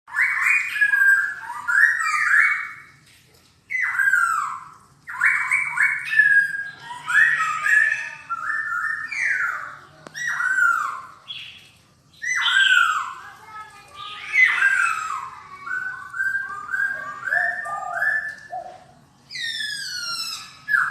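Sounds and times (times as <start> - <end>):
bird singing whistled phrases: 0.1 - 2.9, 3.7 - 13.3, 14.0 - 20.9.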